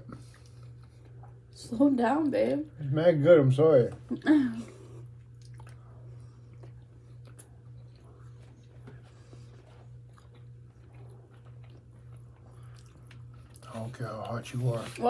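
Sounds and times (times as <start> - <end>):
faint chewing: 0.0 - 1.6, 4.7 - 15.0
steady low hum: 0.0 - 15.0.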